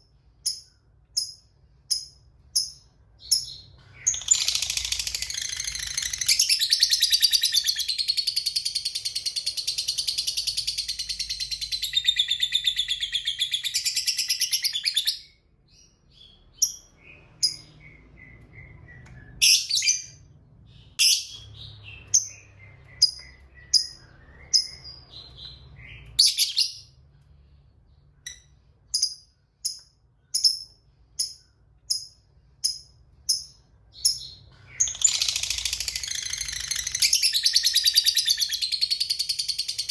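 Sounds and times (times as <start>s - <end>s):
bird chirps: 0.0s - 39.9s
lovebird chatter trill: 4.1s - 8.1s, 34.8s - 38.6s.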